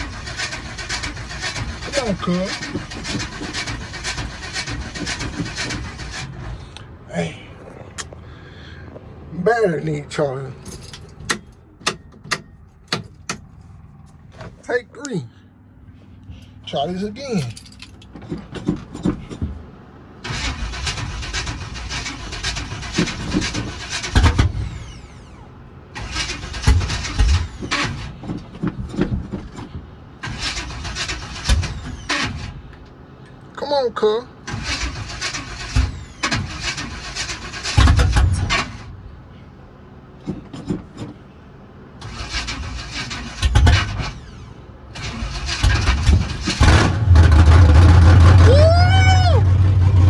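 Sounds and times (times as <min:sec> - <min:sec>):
truck engine cranking: 0:00.0 - 0:15.2, 0:16.0 - 0:50.0
loud low engine pops: 0:22.6 - 0:32.9, 0:34.5 - 0:39.0, 0:45.4 - 0:50.0.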